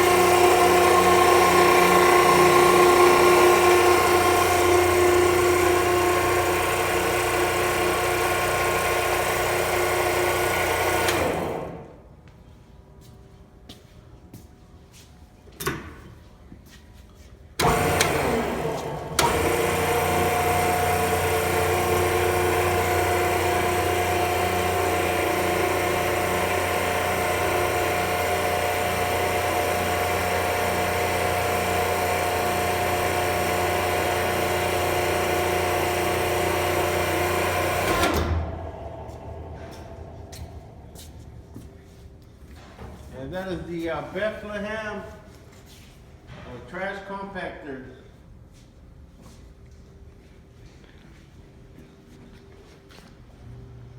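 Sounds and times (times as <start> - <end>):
hydraulic pump running: 0.0 - 12.1, 17.6 - 43.1.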